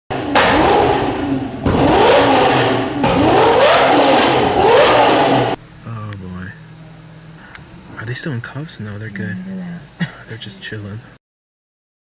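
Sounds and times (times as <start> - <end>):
car engine revving: 0.1 - 5.6.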